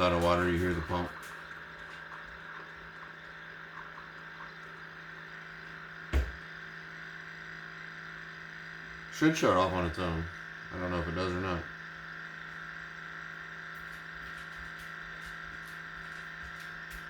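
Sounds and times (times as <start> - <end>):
water pump humming: 0.0 - 17.0
short knock: 6.1 - 6.4.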